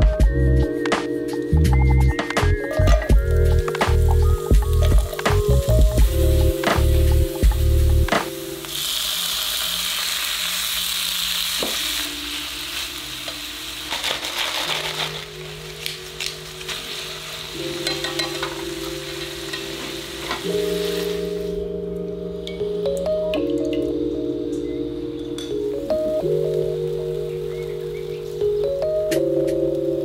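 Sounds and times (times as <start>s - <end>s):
meat sizzling in a frying pan: 3.2s - 21.6s.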